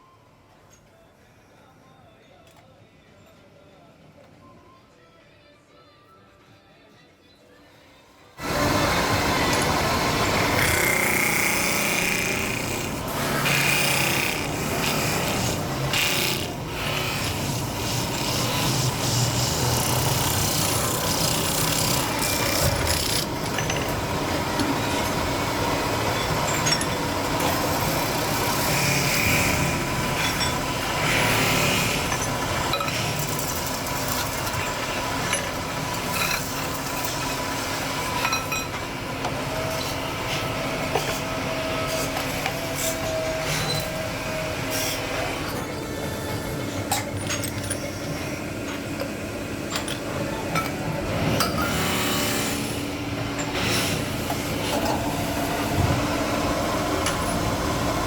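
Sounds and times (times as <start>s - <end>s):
metal scraping and rasping: 10.3s - 24.0s.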